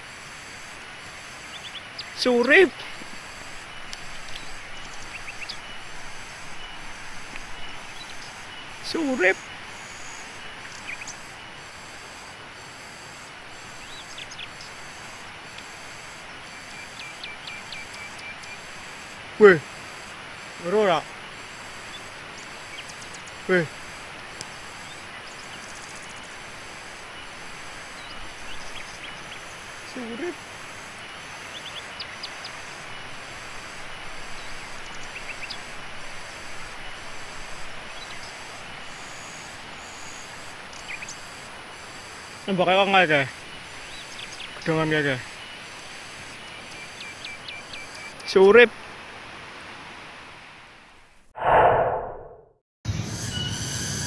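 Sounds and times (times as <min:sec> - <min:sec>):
pulsing insect chorus: 0:00.0 - 0:48.7, 0:52.9 - 0:54.0
steady outdoor hiss: 0:00.0 - 0:51.3.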